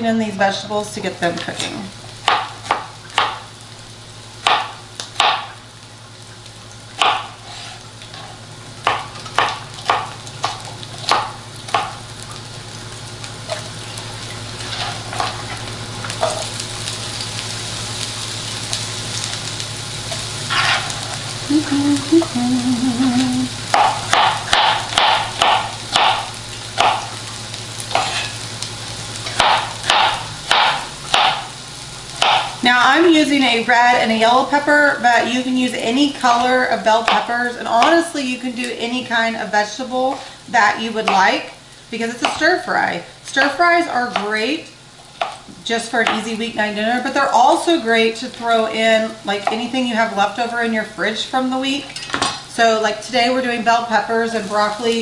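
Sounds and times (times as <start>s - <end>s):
peppers sizzling in oil: 0.0s - 55.0s
knife chopping on cutting board: 4.4s - 5.5s, 7.0s - 7.7s, 8.8s - 11.9s, 23.7s - 27.1s, 27.9s - 28.3s, 29.3s - 31.4s, 32.2s - 32.6s.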